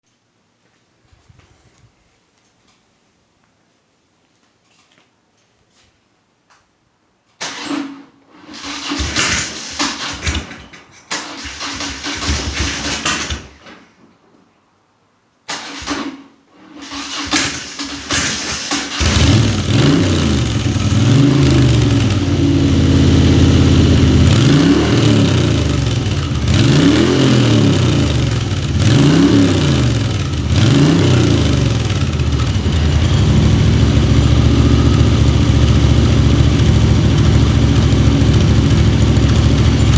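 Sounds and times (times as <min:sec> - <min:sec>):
motorcycle starter cranking: 0:07.4 - 0:13.7, 0:15.5 - 0:39.9
motorcycle engine revving: 0:08.5 - 0:10.3, 0:11.3 - 0:13.3, 0:16.8 - 0:39.9.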